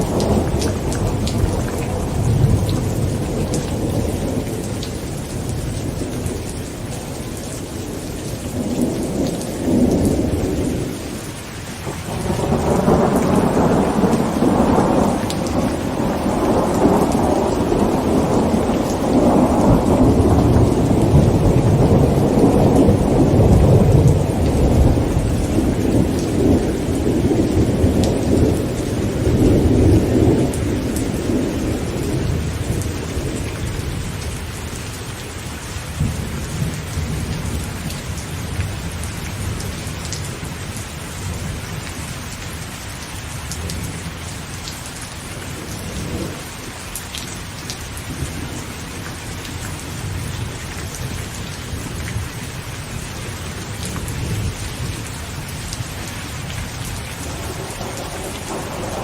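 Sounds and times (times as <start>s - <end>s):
rolling thunder: 0.0s - 11.2s, 11.9s - 34.8s, 45.4s - 46.5s, 48.0s - 59.0s
rain on a tent: 0.0s - 59.0s.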